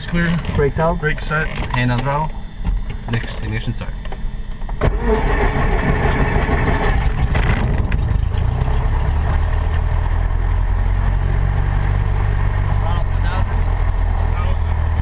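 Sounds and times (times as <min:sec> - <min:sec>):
aircraft engine starting and idling: 0:00.0 - 0:10.6.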